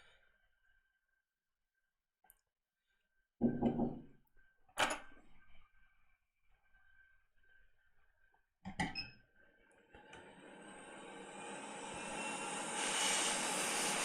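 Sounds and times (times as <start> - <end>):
hot-air stream hissing: 11.4 - 14.0.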